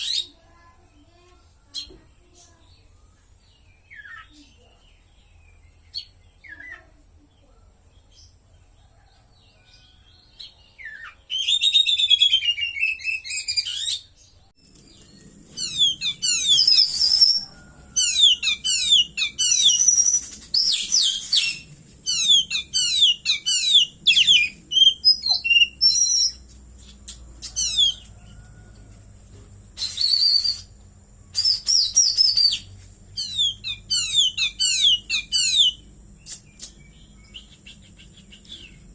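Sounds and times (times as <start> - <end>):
faint chirps: 0.0 - 38.9
bird singing whistled notes: 9.7 - 14.2, 14.9 - 26.4, 29.8 - 38.9.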